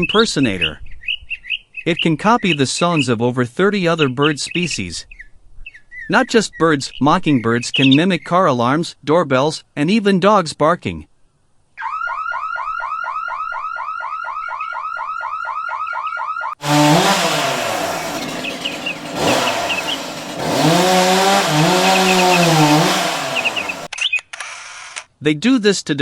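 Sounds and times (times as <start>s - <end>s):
car alarm siren whooping: 11.8s - 16.6s
low tones bending up and down: 16.6s - 23.9s.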